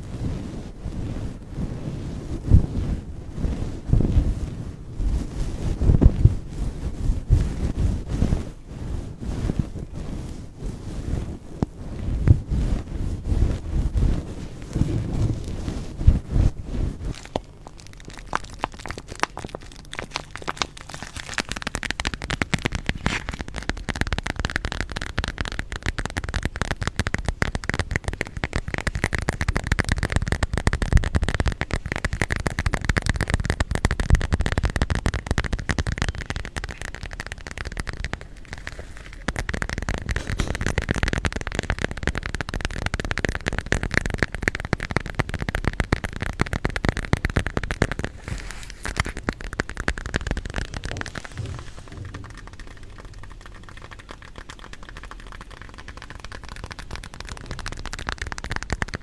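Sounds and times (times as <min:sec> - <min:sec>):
stones grinding together: 0:16.9 - 0:23.8, 0:48.1 - 0:56.0.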